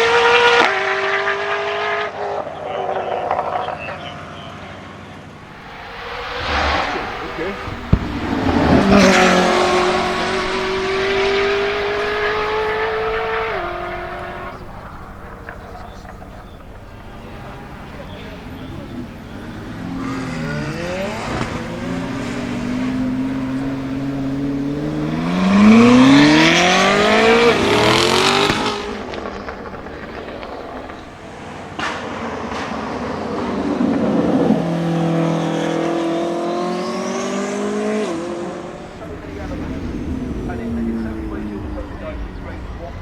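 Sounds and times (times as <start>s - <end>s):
car engine accelerating hard: 0.0s - 3.9s, 5.2s - 43.0s
high rising whine: 5.4s - 31.4s, 38.5s - 43.0s
sharp engine crack: 5.4s - 33.2s, 38.0s - 43.0s.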